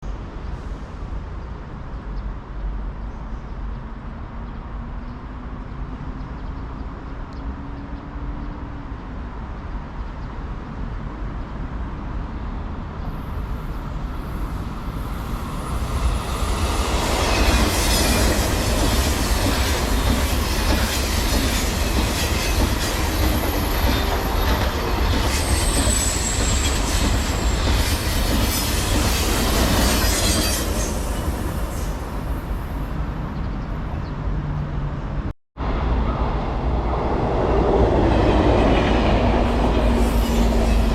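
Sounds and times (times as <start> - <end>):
train rumbling past: 6.9 - 40.9
high wheel squeal: 15.1 - 32.6, 39.7 - 40.9.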